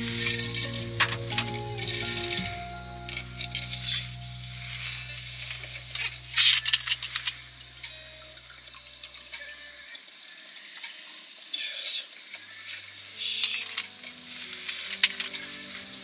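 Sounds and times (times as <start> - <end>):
soft background music hum: 0.0 - 9.9
water running and splashing: 6.4 - 16.0.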